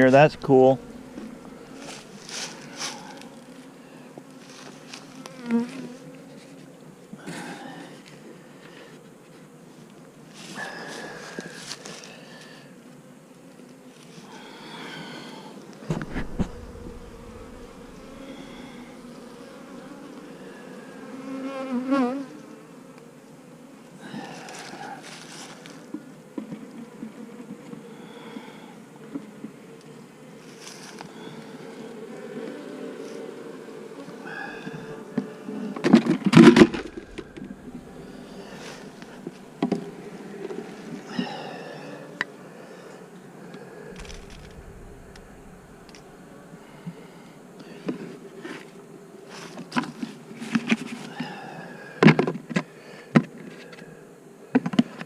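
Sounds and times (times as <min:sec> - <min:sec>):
bee buzzing close by: 0:00.0 - 0:07.0, 0:15.2 - 0:23.9, 0:36.3 - 0:41.1, 0:43.9 - 0:47.3
honeybees buzzing: 0:00.0 - 0:47.5.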